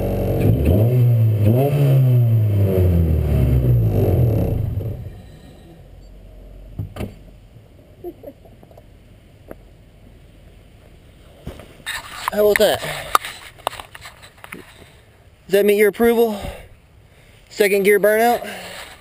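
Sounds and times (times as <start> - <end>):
car engine revving hard: 0.0 - 5.1.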